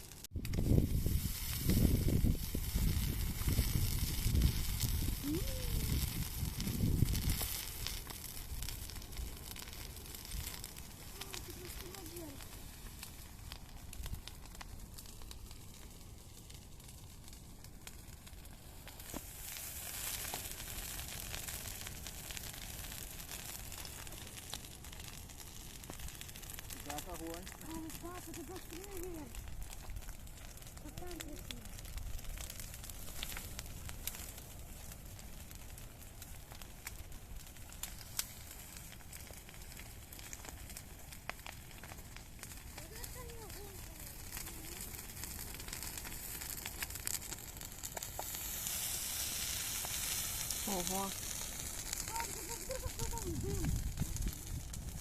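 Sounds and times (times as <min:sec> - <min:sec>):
bonfire crackling and popping: 0:00.0 - 0:55.0
fire hissing: 0:00.0 - 0:55.0.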